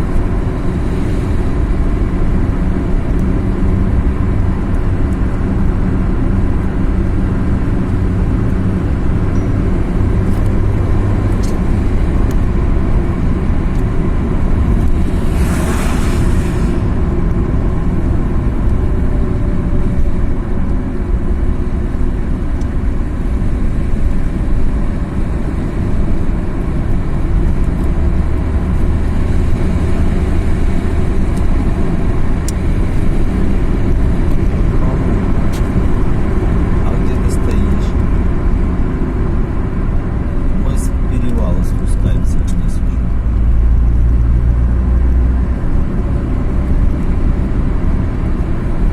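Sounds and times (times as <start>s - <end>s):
car engine and road rumble: 0.0s - 48.9s
brief rushing hiss: 15.2s - 16.9s.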